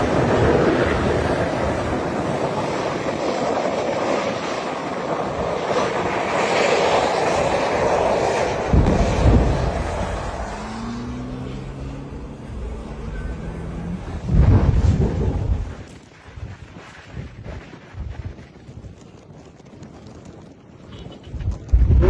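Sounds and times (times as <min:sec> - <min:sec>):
loud roar of burning gas: 0:00.0 - 0:18.1
heavy low rumbling thuds: 0:08.7 - 0:10.3, 0:14.2 - 0:15.8.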